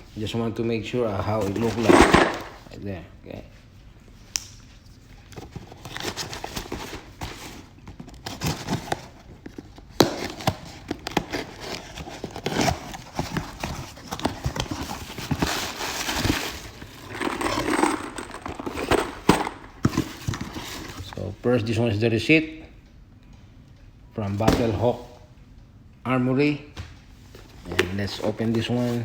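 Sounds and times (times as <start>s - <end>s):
packaging rustling: 1.4s - 2.7s, 5.2s - 21.2s
cardboard box being opened: 5.4s - 17.8s, 18.5s - 21.1s.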